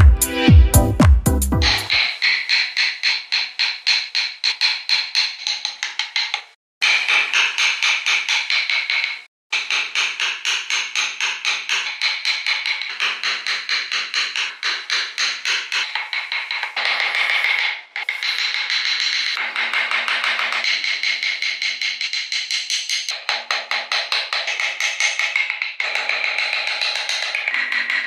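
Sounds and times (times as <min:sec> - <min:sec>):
rapid tapping on wood: 0:01.9 - 0:28.0.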